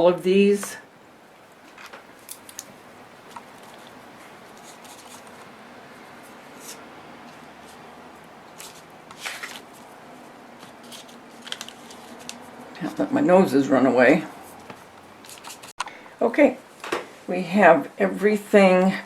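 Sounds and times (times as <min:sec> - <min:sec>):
low room hum: 0:00.0 - 0:19.0
scratchy rustle: 0:03.3 - 0:07.9, 0:08.6 - 0:12.7.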